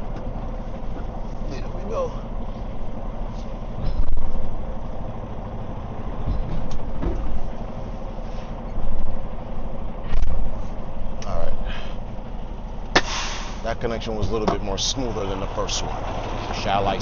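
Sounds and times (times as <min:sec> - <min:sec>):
diesel truck engine running: 0:00.0 - 0:17.0
sharp knock: 0:12.9 - 0:13.6.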